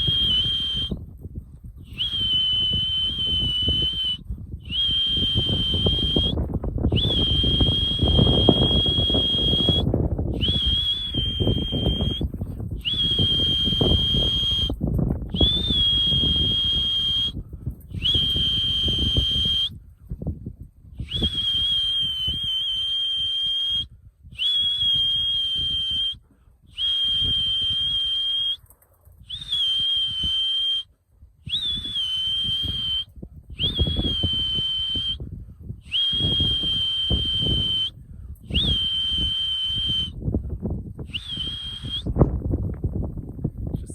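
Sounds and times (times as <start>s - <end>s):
long whistle blasts: 0.0s - 1.0s, 1.9s - 17.4s, 18.0s - 19.8s, 21.0s - 28.6s, 29.3s - 40.2s, 41.0s - 42.2s.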